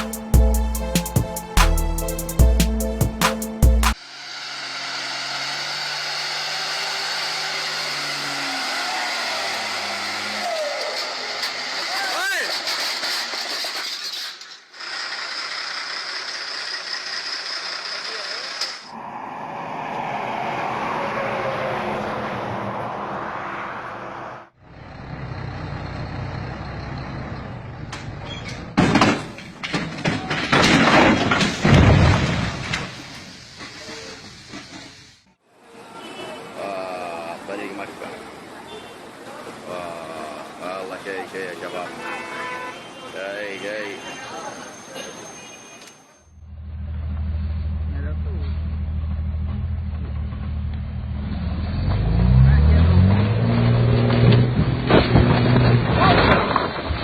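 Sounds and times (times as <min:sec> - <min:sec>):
music with heavy beat: 0:00.0 - 0:04.0
heavy truck engine running: 0:00.0 - 0:11.9, 0:14.7 - 0:18.9, 0:24.6 - 0:28.8, 0:46.3 - 0:51.7
loud crashing bursts: 0:28.8 - 0:34.5, 0:54.3 - 0:57.0
loud hiss: 0:32.8 - 0:35.3
vehicle engine running: 0:46.3 - 0:52.8.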